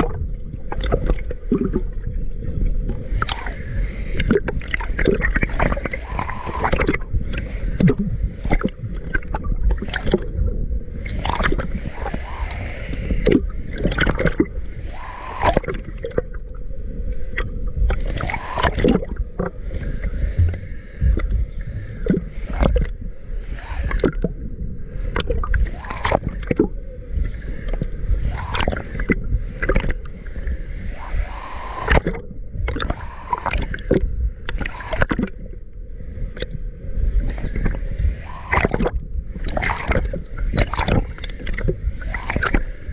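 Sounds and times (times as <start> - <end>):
low rumble: 0.0 - 42.9
water gurgling and splashing: 0.0 - 42.9.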